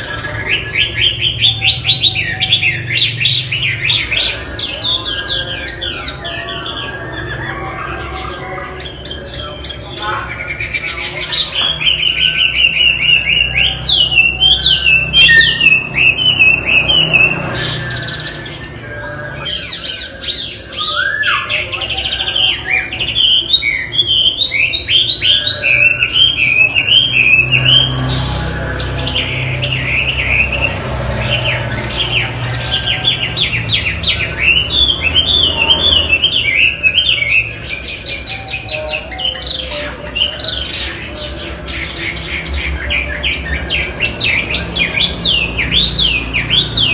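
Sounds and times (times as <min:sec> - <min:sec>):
bird singing whistled notes: 0:11.6 - 0:22.2.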